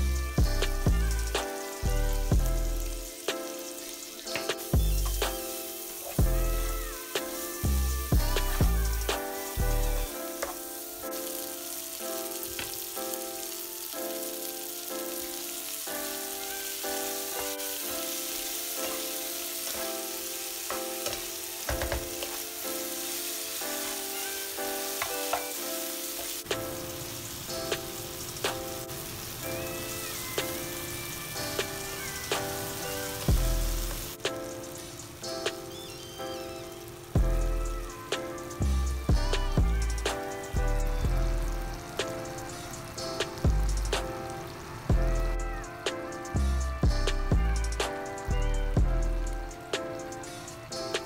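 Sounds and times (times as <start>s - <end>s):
vegetables sizzling in oil: 0.0s - 51.0s
spatula scraping and tapping pan: 20.7s - 22.4s, 25.0s - 25.5s.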